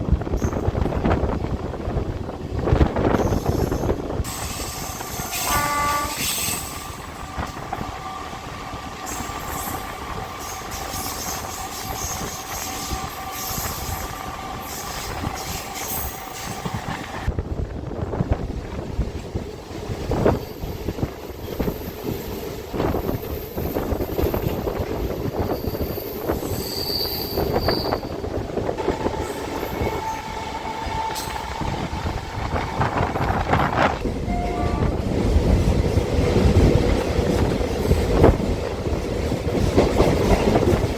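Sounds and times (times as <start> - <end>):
train running noise: 0.0 - 40.9
electric train whining: 20.2 - 40.9.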